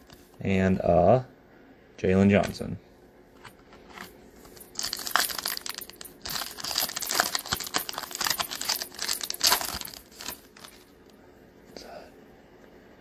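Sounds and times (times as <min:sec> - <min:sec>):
wrapper crinkling and tearing: 0:04.6 - 0:10.8.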